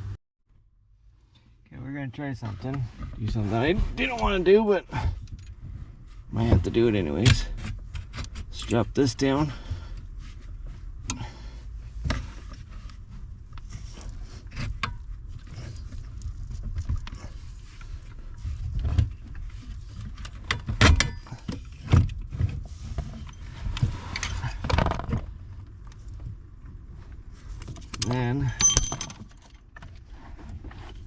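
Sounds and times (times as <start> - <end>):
metallic clinks and knocks: 27.8 - 29.7.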